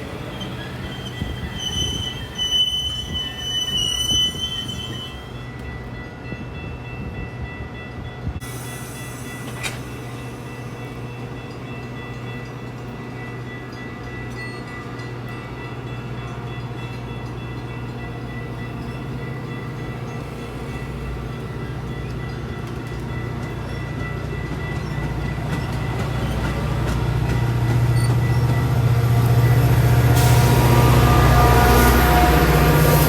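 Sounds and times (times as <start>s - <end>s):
train engine drone: 0.0s - 33.0s
wheel and rail rumble: 0.0s - 33.0s.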